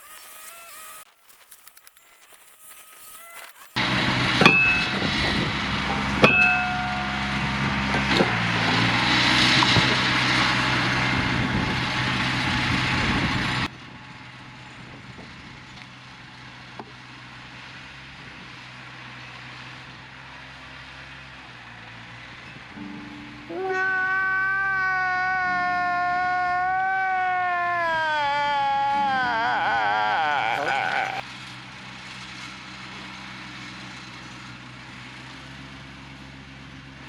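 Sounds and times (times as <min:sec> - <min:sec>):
tractor engine running: 0:03.8 - 0:23.5, 0:31.2 - 0:37.0
sharp metallic clanks: 0:04.4 - 0:10.3.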